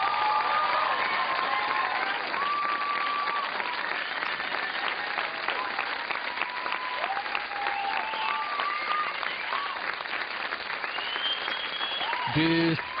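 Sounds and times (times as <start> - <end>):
audience applauding: 0.0 - 13.0
long high whistles: 10.8 - 12.2.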